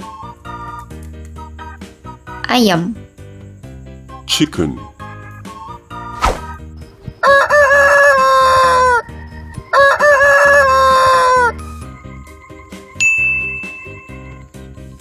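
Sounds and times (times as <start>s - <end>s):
faint background music: 0.0s - 15.0s
rooster crowing: 7.2s - 11.7s
bright ding: 13.0s - 14.3s.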